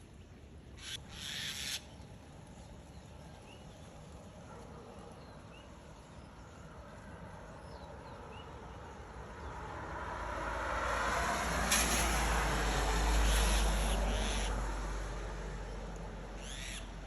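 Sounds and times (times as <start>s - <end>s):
outdoor background hiss: 0.0s - 17.0s
faint upswept bird chirps: 16.4s - 16.9s.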